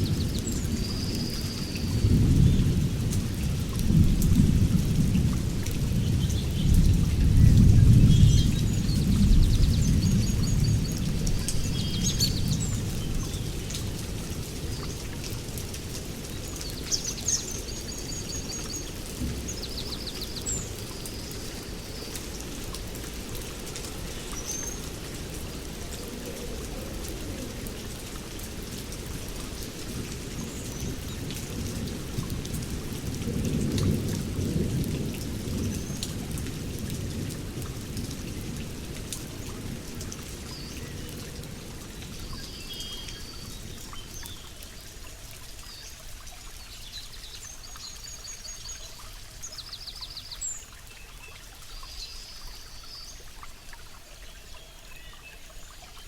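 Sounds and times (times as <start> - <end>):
steady rain: 0.0 - 56.0
low rolls of thunder: 2.0 - 14.0, 30.8 - 40.0.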